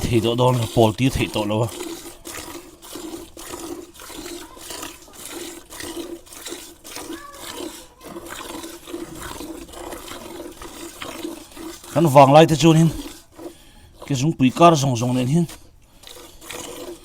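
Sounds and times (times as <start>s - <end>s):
milk squirting into pail: 0.0s - 17.0s.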